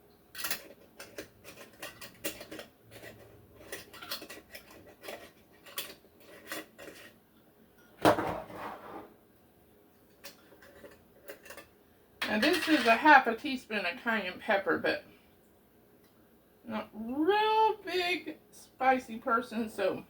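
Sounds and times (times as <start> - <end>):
spoons and jars clinking: 10.2 - 13.0.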